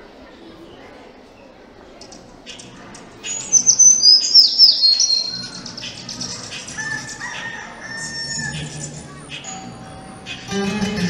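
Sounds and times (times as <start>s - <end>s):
birds chirping: 2.0s - 11.0s
whistled bird notes: 2.5s - 10.5s.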